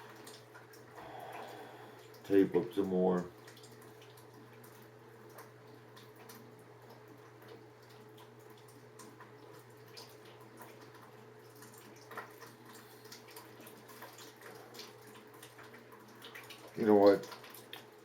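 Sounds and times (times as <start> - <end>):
steady low hum: 0.0 - 2.8
water dripping into a bucket: 0.0 - 18.0.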